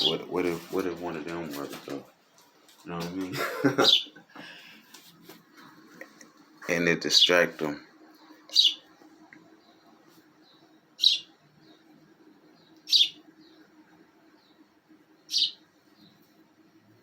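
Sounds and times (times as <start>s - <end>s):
faint steady low hum: 0.0s - 17.0s
small bird chirping: 3.8s - 4.2s, 8.0s - 16.3s.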